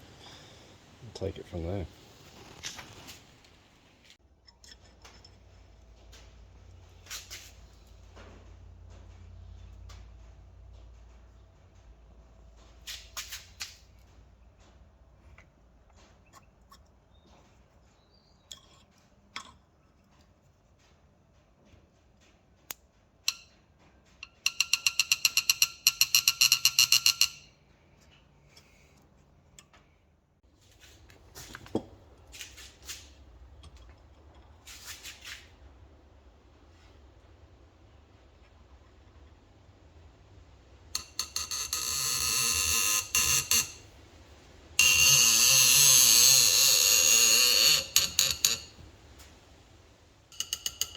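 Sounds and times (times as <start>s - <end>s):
metal hand tool clicks and knocks: 24.2s - 27.5s, 50.3s - 50.9s.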